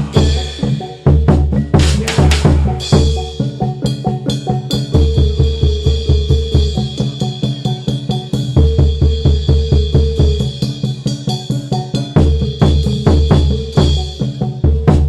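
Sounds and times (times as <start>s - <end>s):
repeated pitched notes: 0.0s - 5.2s
rapid driving drumming: 0.0s - 15.0s.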